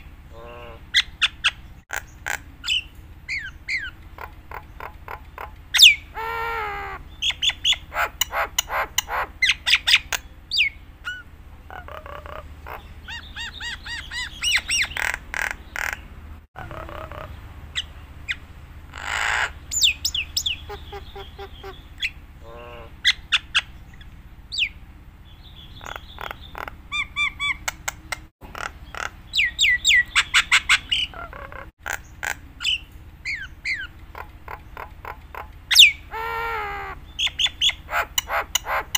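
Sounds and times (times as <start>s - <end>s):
steady low hum: 0.0s - 38.9s
myna singing whistles and squawks: 5.8s - 11.3s, 19.0s - 22.2s, 35.7s - 38.9s.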